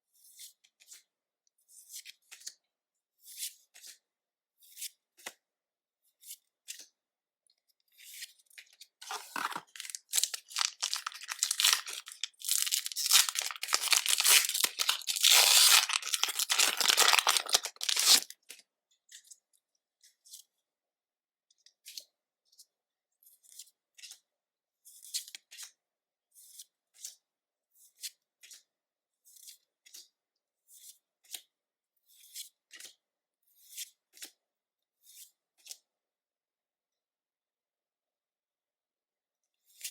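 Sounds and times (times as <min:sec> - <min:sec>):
foil wrapper tearing: 0:09.0 - 0:18.3.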